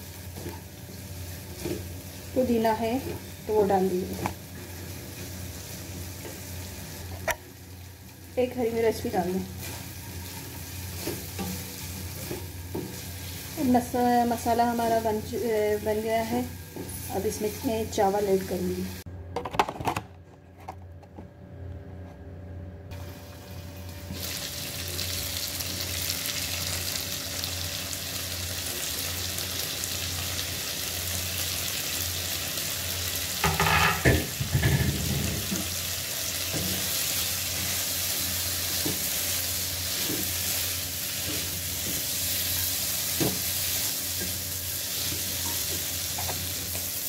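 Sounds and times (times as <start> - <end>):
food sizzling in a pan: 0.0 - 19.1, 22.9 - 47.0.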